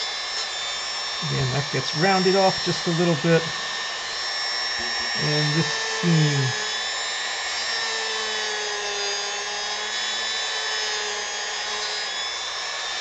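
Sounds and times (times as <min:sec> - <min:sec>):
rotary tool whining on wood: 0:00.0 - 0:13.0.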